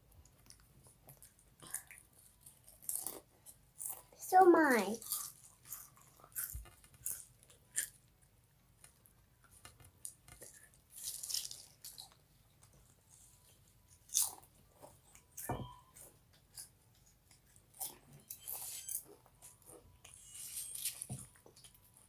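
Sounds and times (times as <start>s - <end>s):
chips being crunched: 11.0s - 12.1s.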